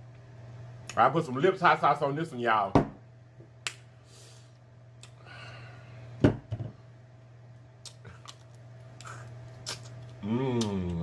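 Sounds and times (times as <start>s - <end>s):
low steady hum: 0.0s - 11.0s
person chewing with mouth clicks: 7.8s - 11.0s.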